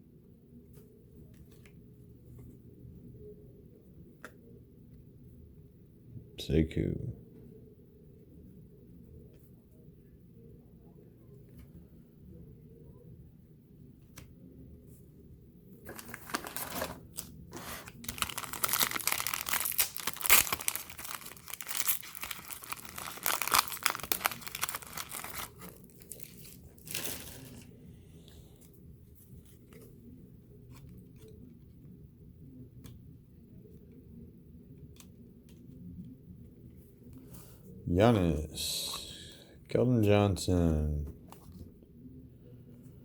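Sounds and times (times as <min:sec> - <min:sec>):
wrapper tearing and crinkling: 0:15.9 - 0:27.7.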